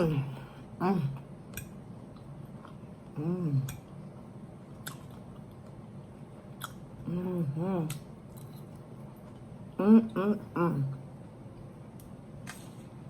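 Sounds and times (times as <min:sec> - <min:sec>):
person humming mmm: 0:03.2 - 0:03.8, 0:07.0 - 0:08.0
person chewing: 0:04.7 - 0:05.8.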